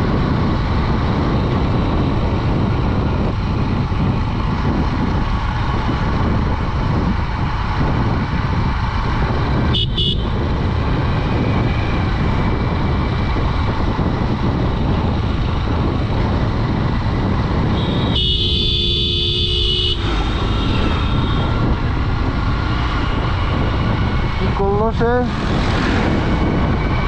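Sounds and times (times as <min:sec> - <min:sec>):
motorcycle engine: 0:00.0 - 0:27.0
wind rush: 0:00.0 - 0:27.0
vehicle horn blaring: 0:09.7 - 0:10.4, 0:17.8 - 0:21.6.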